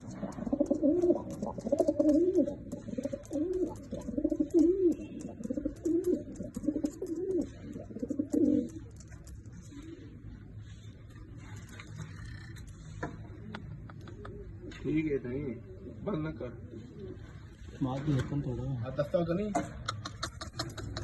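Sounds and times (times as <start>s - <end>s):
pigeons cooing: 0.0s - 10.6s, 13.2s - 17.7s, 19.9s - 21.0s.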